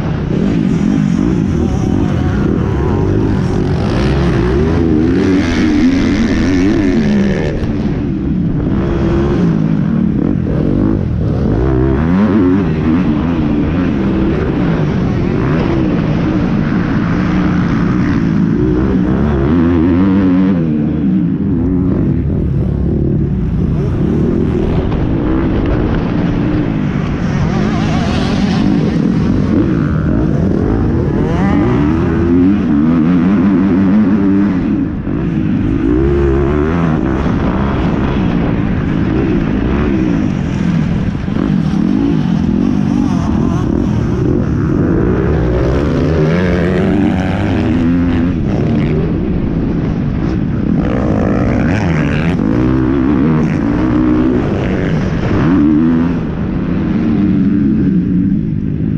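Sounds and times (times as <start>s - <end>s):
dirt bike engine revving: 0.0s - 58.5s.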